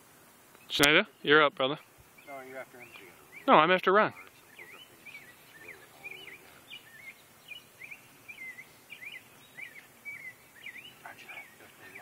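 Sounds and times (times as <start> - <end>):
background hiss: 0.0 - 12.0
bird whistling: 4.5 - 12.0.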